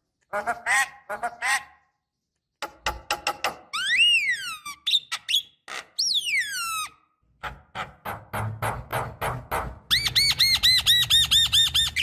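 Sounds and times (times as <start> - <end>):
myna whistling calls: 9.9 - 12.0.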